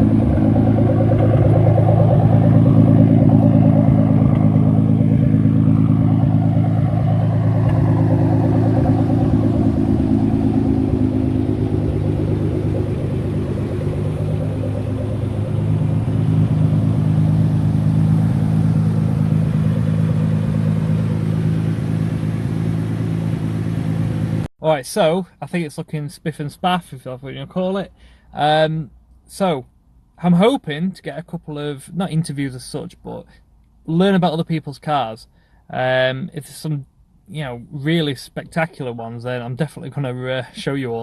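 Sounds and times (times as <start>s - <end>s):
car engine running: 0.0s - 24.5s.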